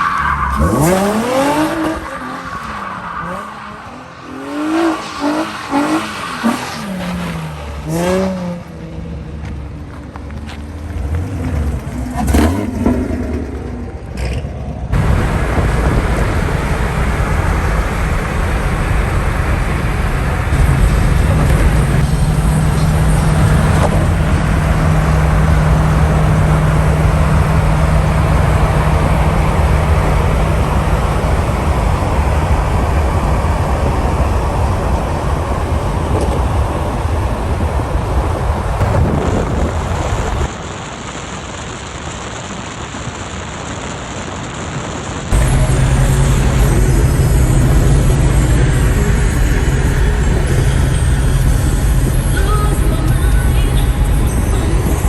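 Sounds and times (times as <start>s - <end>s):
car engine revving: 0.0s - 9.7s, 10.4s - 55.0s
wind and road noise: 0.0s - 55.0s
sharp crack: 38.8s - 50.2s.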